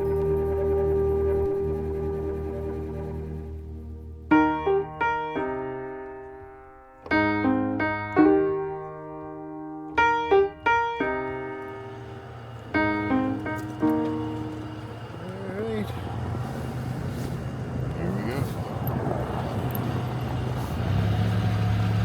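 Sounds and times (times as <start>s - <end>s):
slow piano music: 0.0s - 17.3s.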